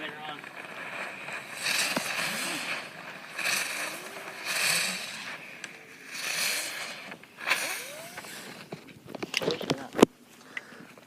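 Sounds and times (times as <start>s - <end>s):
ground firework hissing: 0.0s - 8.8s.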